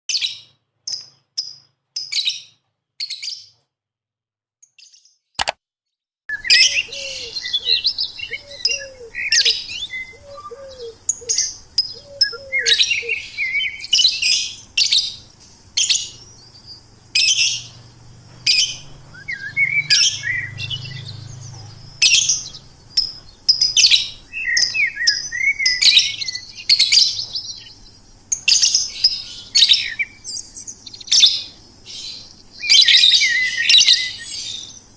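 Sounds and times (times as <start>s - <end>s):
single click: 5.4s - 5.6s
low falling bird call: 6.3s - 15.3s, 18.4s - 27.9s
bird chirping and twittering: 6.3s - 34.9s.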